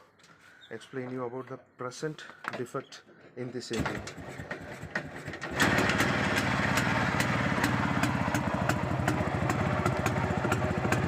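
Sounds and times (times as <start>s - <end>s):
regular engine knock: 4.2s - 11.0s
motorcycle engine idling: 4.3s - 11.0s.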